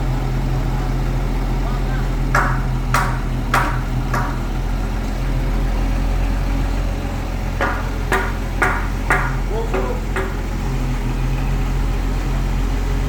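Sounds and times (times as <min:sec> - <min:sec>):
truck engine idling: 0:00.0 - 0:13.0
sharp knocks: 0:02.2 - 0:04.9, 0:07.6 - 0:10.9.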